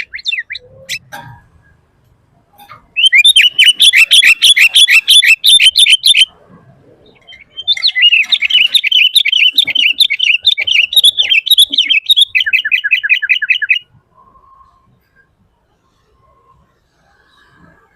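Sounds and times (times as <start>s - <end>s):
bird singing chirps: 0.0s - 1.1s, 2.6s - 6.4s, 7.0s - 14.9s.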